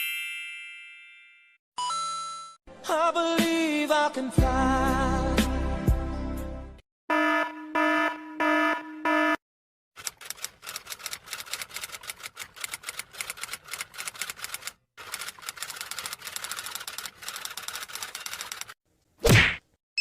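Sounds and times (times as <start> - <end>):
rapid dense clicking: 10.0 - 18.8.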